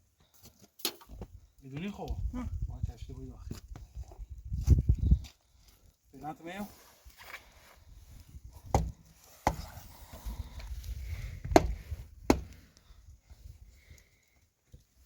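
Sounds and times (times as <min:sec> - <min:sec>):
axe chopping wood: 0:08.7 - 0:09.7, 0:11.4 - 0:12.6.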